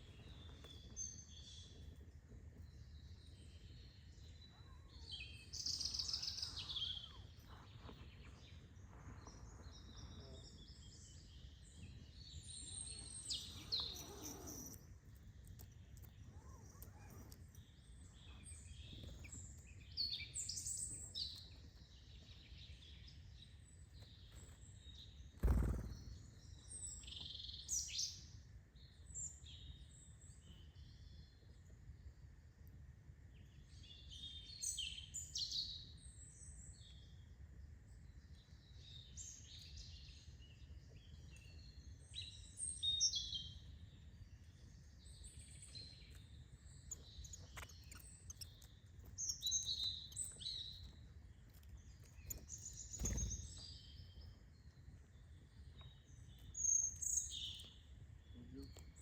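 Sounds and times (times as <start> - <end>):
birds chirping and trilling: 0.0 - 28.2, 38.6 - 59.0.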